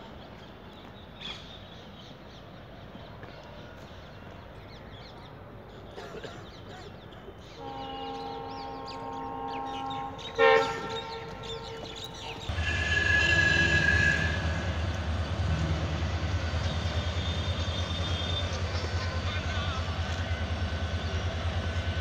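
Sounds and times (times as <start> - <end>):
train rumbling: 3.5 - 22.0
train horn: 7.6 - 22.0.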